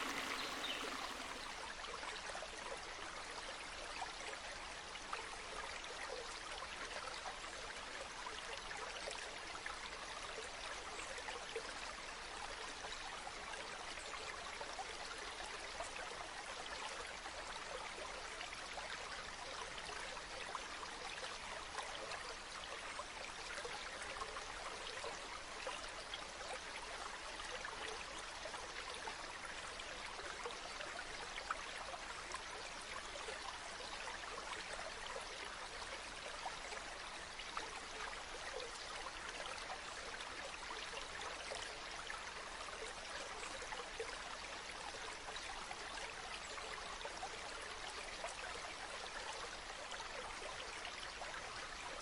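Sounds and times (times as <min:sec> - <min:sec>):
running water trickling: 0:00.0 - 0:01.6.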